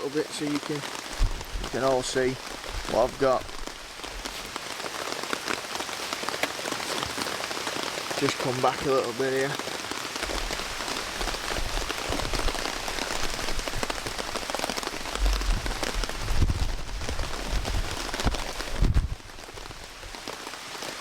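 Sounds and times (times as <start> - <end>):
heavy rain falling: 0.0 - 21.0
low rumbles: 10.2 - 19.7.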